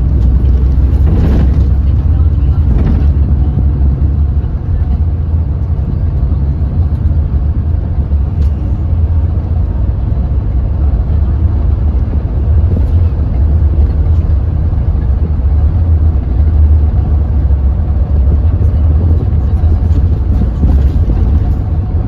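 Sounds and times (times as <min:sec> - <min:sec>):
bus engine droning: 0:00.0 - 0:22.0.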